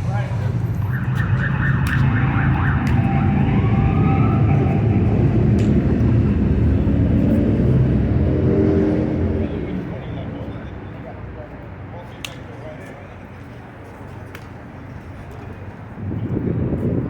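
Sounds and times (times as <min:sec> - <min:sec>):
traffic rumble: 0:00.0 - 0:17.0
distant siren tone: 0:00.5 - 0:09.4.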